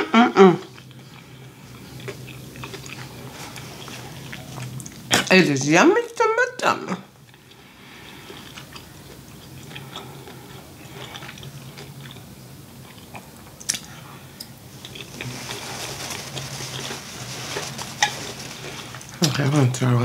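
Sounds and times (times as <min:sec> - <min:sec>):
chewing calamari: 0:00.6 - 0:05.4, 0:07.1 - 0:19.6
paper napkin rustling: 0:02.5 - 0:05.5, 0:14.7 - 0:19.8
wet mouth clicks and smacks: 0:13.6 - 0:13.9.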